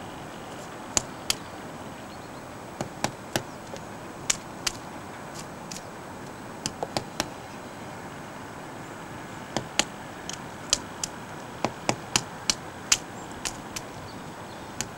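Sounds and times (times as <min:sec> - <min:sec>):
steady hiss: 0:00.0 - 0:14.9
woodpecker tapping on wood: 0:00.4 - 0:01.6, 0:02.8 - 0:07.4, 0:09.5 - 0:14.9.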